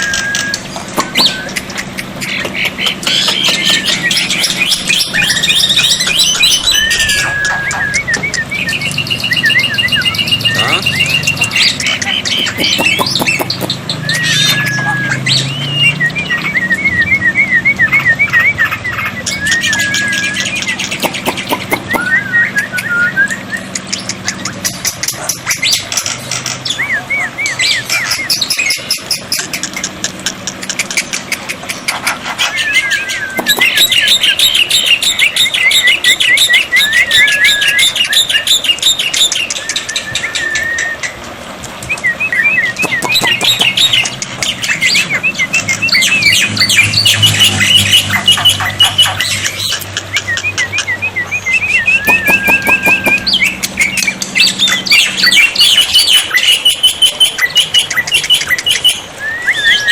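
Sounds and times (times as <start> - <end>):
short whistled bird notes: 0.0 - 1.6, 51.5 - 54.1
myna chattering and squawking: 0.0 - 16.5, 17.9 - 22.1, 23.5 - 41.8, 42.6 - 59.9.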